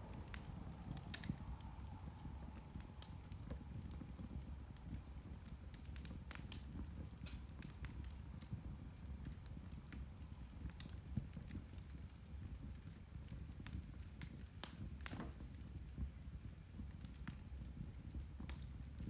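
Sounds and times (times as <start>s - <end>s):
low steady rumble: 0.0s - 12.5s
peat fire crackling: 0.0s - 19.0s.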